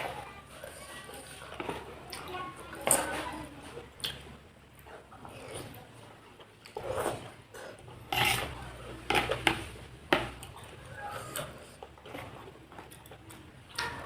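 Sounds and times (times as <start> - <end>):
eating noises: 0.0 - 9.4, 10.3 - 14.0.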